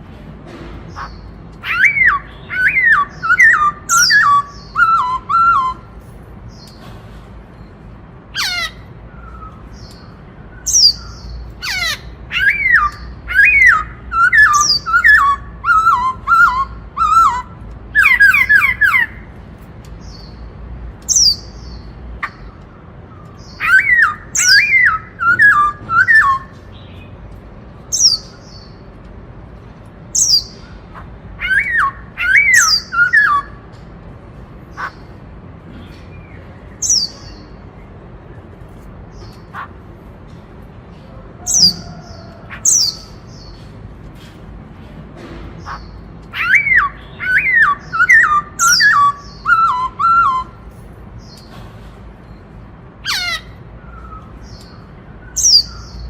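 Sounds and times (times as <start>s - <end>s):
bird singing whistled notes: 1.6s - 5.9s, 9.1s - 19.1s, 23.4s - 27.0s, 31.4s - 33.6s, 46.4s - 50.6s.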